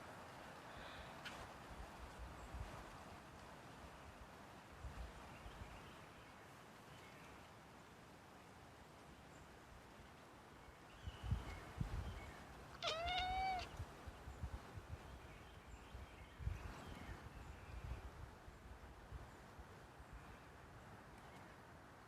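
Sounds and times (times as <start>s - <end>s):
cat meowing: 12.8s - 13.8s.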